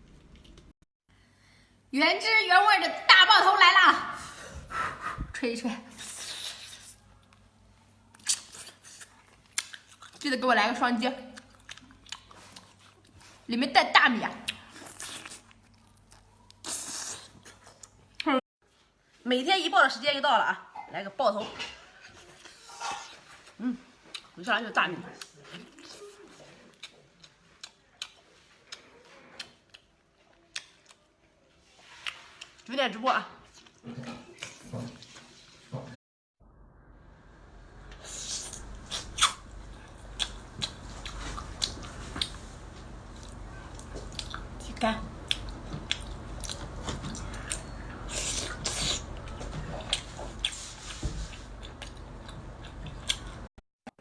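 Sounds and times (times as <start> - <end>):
wet eating clicks and smacks: 45.2 - 50.6, 51.6 - 53.4.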